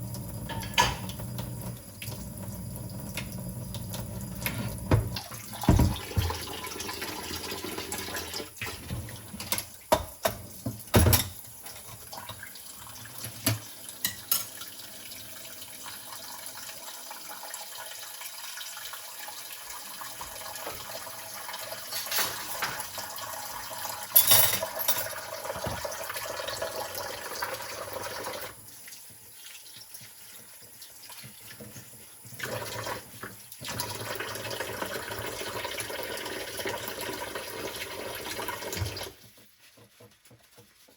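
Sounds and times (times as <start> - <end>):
tap water running into sink: 0.0 - 40.9
dishes clinking: 0.5 - 1.2, 21.9 - 22.9, 24.2 - 25.8.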